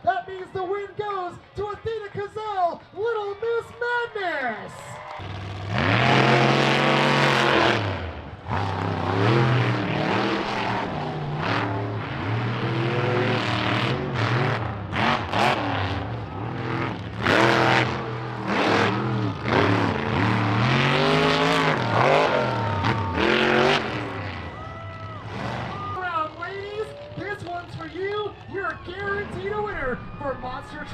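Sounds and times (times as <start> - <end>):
monster truck engine revving: 5.2 - 29.4.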